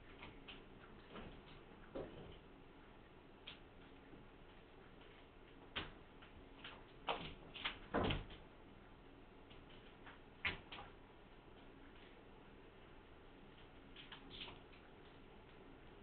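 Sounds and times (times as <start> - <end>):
light knocks and clatters: 0.3 - 2.5.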